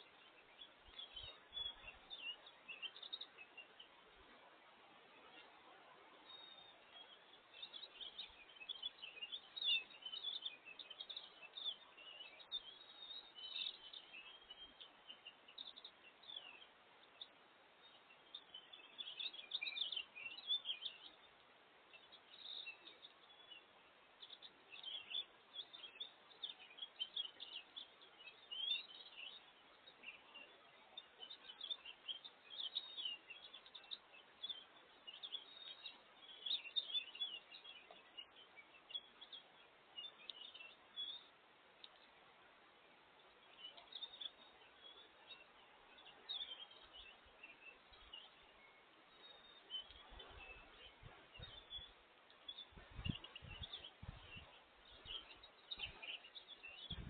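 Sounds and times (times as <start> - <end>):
faint steady hiss: 0.0 - 57.0
songbirds chirping and twittering: 0.0 - 57.0.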